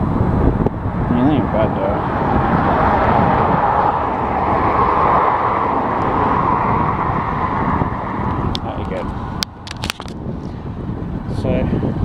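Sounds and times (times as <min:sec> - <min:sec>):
train rumbling roar: 0:00.8 - 0:09.4.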